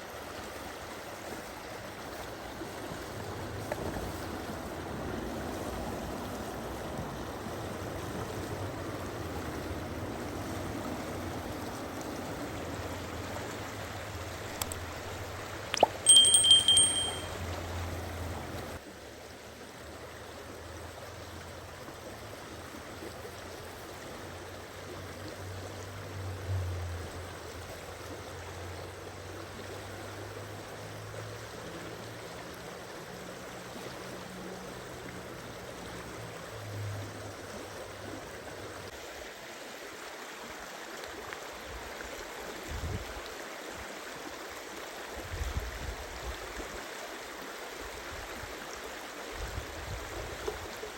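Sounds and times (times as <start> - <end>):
water flowing: 0.0 - 18.8.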